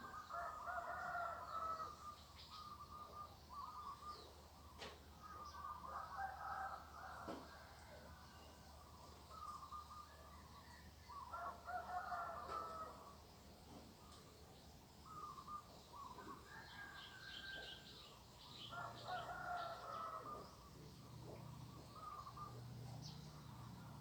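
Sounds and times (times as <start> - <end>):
roosters crowing: 11.3 - 13.1, 18.7 - 22.6.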